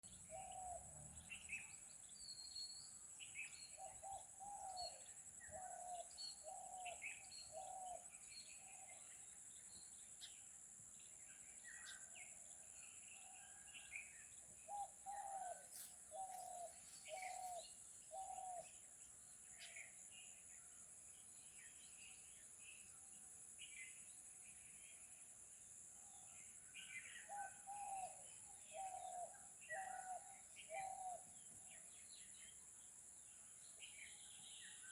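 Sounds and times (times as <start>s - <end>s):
bird hooting calls: 0.0s - 1.0s, 14.7s - 18.7s, 27.3s - 31.3s
birds chirping: 14.6s - 18.7s.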